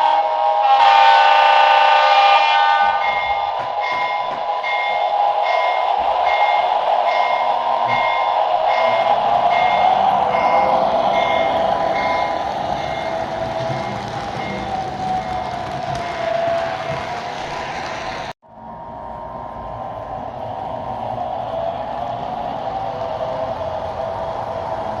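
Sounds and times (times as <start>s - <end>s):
toy train bell dinging: 3.0s - 14.7s
toy train running on track: 3.0s - 18.3s.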